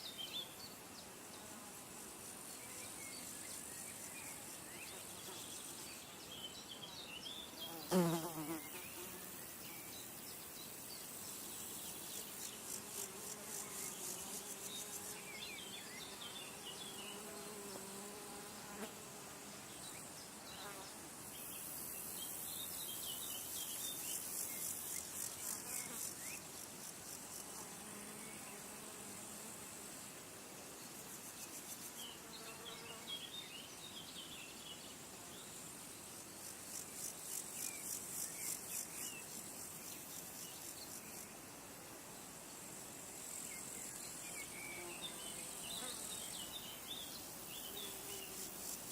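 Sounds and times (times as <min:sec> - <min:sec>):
low wavering insect hum: 0:00.0 - 0:48.9
insects trilling: 0:19.7 - 0:29.5.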